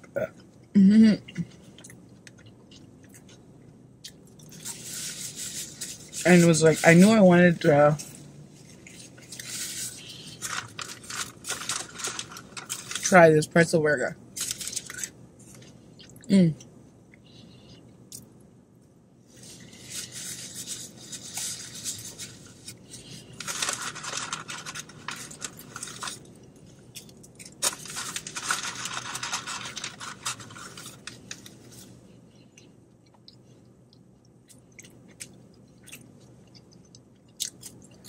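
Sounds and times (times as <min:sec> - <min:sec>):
paper packaging rustling: 0:08.8 - 0:13.2, 0:19.4 - 0:26.3, 0:27.4 - 0:31.9.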